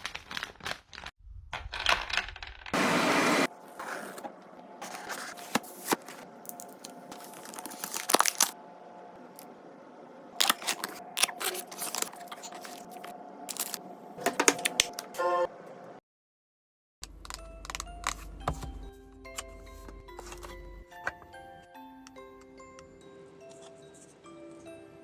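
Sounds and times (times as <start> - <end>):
packaging tearing and crinkling: 0.0 - 1.1, 4.8 - 8.6, 10.4 - 13.8.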